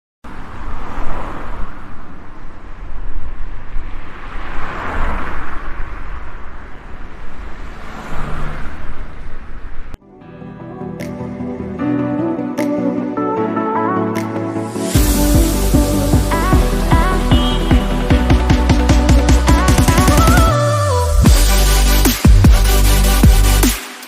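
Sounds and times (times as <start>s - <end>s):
constant low traffic rumble: 0.2s - 10.0s
vehicles rushing past: 0.2s - 10.0s
gentle music: 10.0s - 21.3s.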